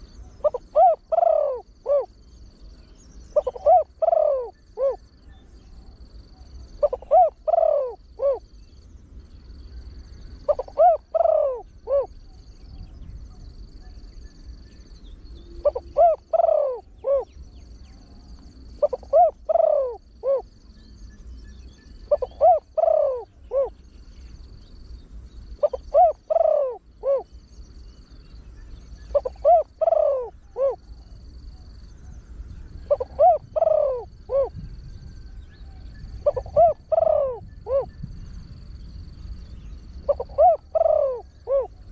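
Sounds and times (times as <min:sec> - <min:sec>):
dove cooing: 0:00.0 - 0:02.3, 0:03.3 - 0:05.2, 0:05.8 - 0:08.6, 0:10.4 - 0:12.3, 0:15.6 - 0:17.4, 0:18.6 - 0:20.6, 0:22.0 - 0:23.9, 0:25.6 - 0:27.4, 0:29.0 - 0:38.2, 0:39.6 - 0:41.9.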